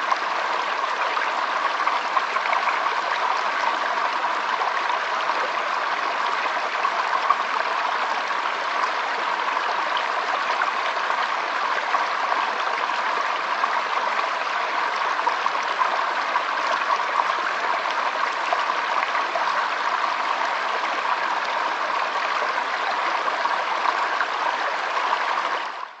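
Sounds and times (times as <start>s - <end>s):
stream water flowing: 0.0s - 26.0s.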